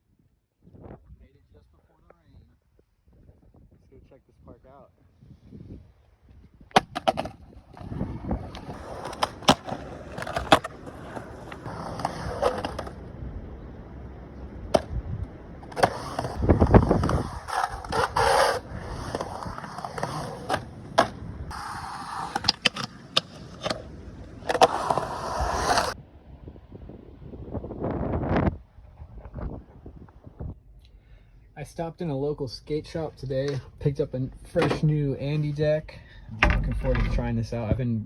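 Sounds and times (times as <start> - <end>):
skateboard clacking on ground: 6.7 - 13.0, 15.6 - 26.0
skateboard wheels rolling: 6.7 - 26.0.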